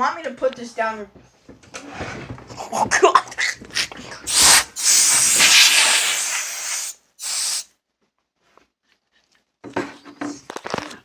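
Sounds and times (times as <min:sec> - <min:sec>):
compressed air hissing: 0:04.3 - 0:07.7.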